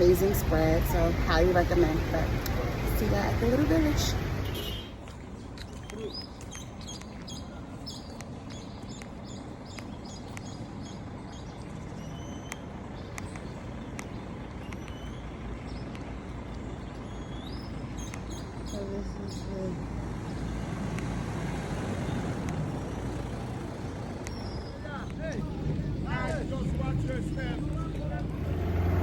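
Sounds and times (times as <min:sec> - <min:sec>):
steady low rumble: 0:00.0 - 0:29.0
birds chirping and whistling: 0:05.6 - 0:19.6, 0:24.2 - 0:25.1.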